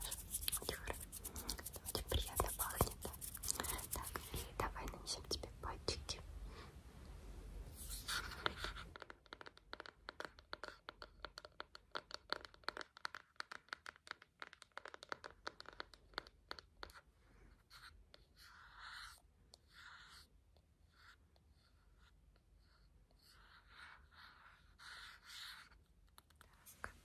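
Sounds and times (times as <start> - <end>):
finger scratching and tapping: 0.0 - 5.4, 7.9 - 17.0.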